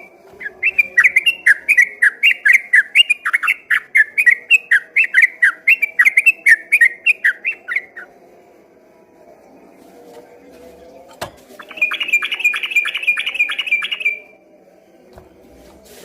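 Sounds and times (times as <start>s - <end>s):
bird singing whistled notes: 0.0s - 8.1s, 11.6s - 14.4s.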